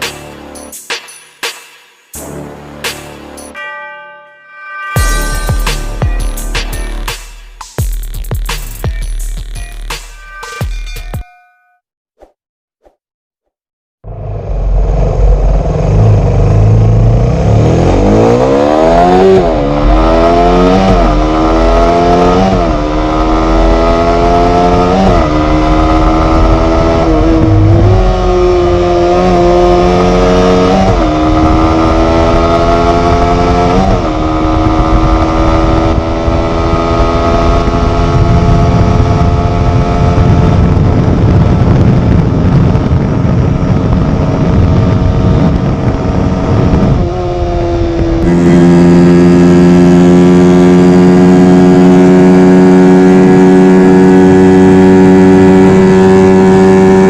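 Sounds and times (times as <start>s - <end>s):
motorcycle engine accelerating: 14.0s - 57.0s
low rush of wind: 14.1s - 57.0s.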